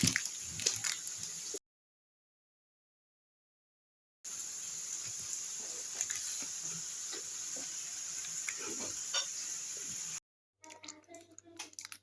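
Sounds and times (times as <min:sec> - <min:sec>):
food sizzling in a frying pan: 0:00.0 - 0:01.6, 0:04.3 - 0:10.2.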